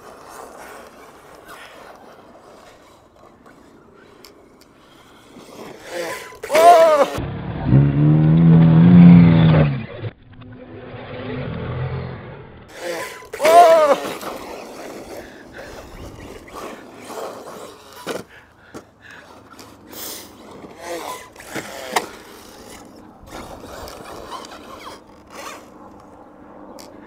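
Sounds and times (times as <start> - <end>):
tyres scraping on gravel: 0.0 - 7.2, 12.7 - 26.2
electric motor whine: 5.3 - 18.3, 19.3 - 27.0.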